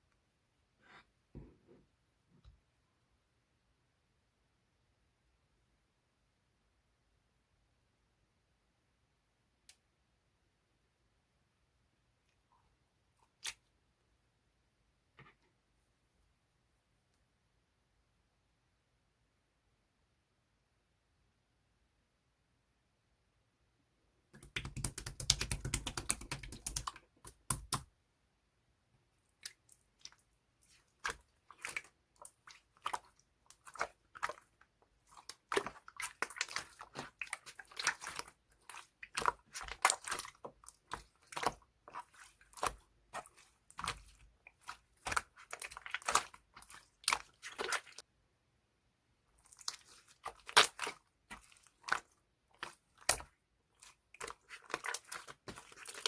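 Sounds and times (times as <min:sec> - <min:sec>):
hands squishing slime: 0:24.4 - 0:27.9, 0:29.3 - 0:48.0, 0:49.3 - 0:56.0.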